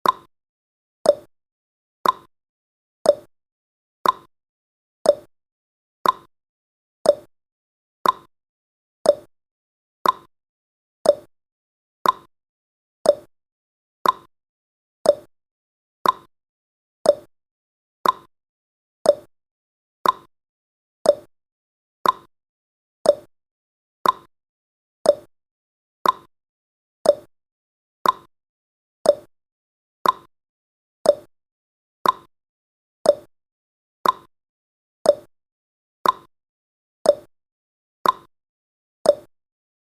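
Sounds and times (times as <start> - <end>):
timer ticking: 0.0 - 0.3, 1.1 - 1.3, 2.0 - 2.3, 3.1 - 3.3, 4.0 - 4.3, 5.1 - 5.3, 6.0 - 6.3, 7.0 - 7.3, 8.0 - 8.3, 9.0 - 9.3, 10.0 - 10.3, 11.0 - 11.3, 12.0 - 12.3, 13.0 - 13.3, 14.0 - 14.3, 15.0 - 15.3, 16.0 - 16.3, 17.0 - 17.3, 18.0 - 18.3, 19.0 - 19.3, 20.0 - 20.3, 21.0 - 21.3, 22.0 - 22.3, 23.0 - 23.3, 24.0 - 24.3, 25.0 - 25.3, 26.0 - 26.3, 27.0 - 27.3, 28.0 - 28.3, 29.0 - 29.3, 30.0 - 30.3, 31.0 - 31.3, 32.0 - 32.3, 33.0 - 33.3, 34.0 - 34.3, 35.1 - 35.3, 36.0 - 36.3, 37.1 - 37.3, 38.0 - 38.3, 39.1 - 39.3.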